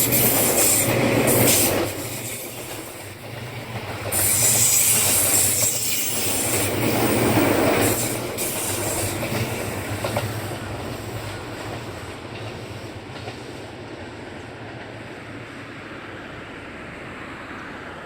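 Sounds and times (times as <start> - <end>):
train wheels squealing: 0.0 - 13.8
train low hum: 0.0 - 18.0.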